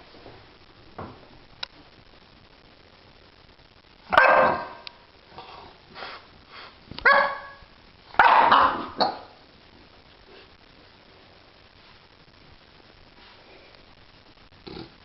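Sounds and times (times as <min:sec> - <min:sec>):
dog barking: 0:04.1 - 0:04.8, 0:07.0 - 0:07.6, 0:08.2 - 0:09.3.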